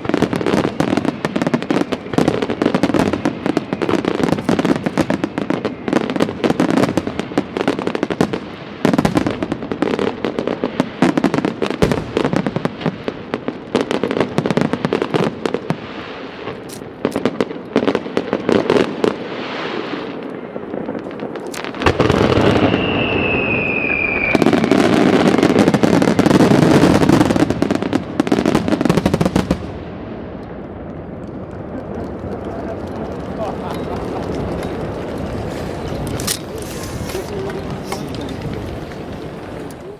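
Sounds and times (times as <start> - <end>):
fireworks crackling and banging: 0.0 - 39.9
falling whistle: 22.4 - 24.9.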